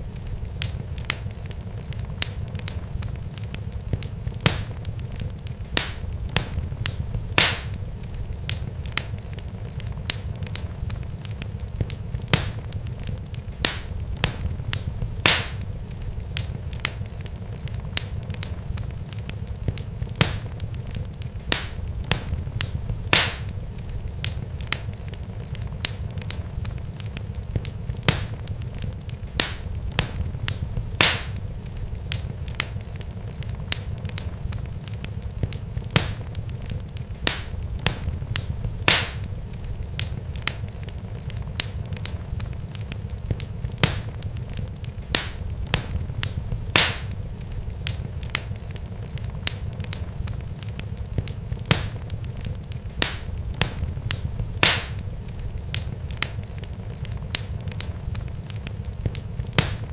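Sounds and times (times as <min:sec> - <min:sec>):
sharp crackling pops: 0:00.0 - 0:59.9
steady low rumble: 0:00.0 - 0:59.9
loud snap: 0:07.4 - 0:07.8, 0:15.2 - 0:15.6, 0:23.1 - 0:23.5, 0:31.0 - 0:31.4, 0:38.9 - 0:39.2, 0:46.8 - 0:47.1, 0:54.6 - 0:55.0.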